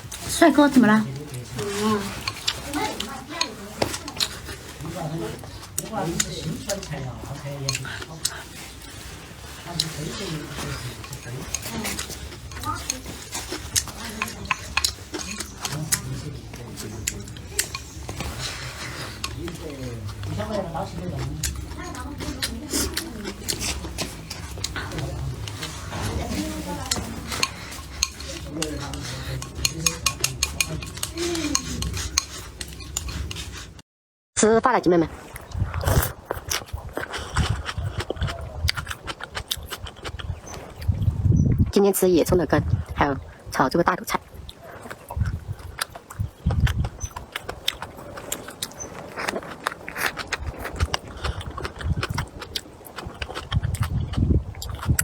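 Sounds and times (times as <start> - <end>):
biting and chewing food: 0.0 - 33.8, 35.2 - 41.7, 44.1 - 55.0
dishes and utensils clinking: 0.0 - 33.8
faint voices: 0.3 - 33.8.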